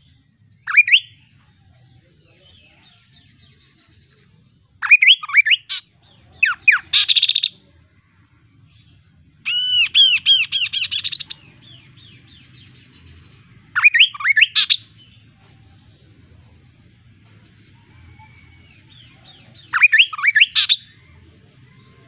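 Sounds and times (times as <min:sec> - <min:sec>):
bird singing whistled notes: 0:00.0 - 0:01.4, 0:02.4 - 0:07.7, 0:08.7 - 0:15.4, 0:17.4 - 0:22.0
rapidly repeated bird chirps: 0:00.0 - 0:22.0.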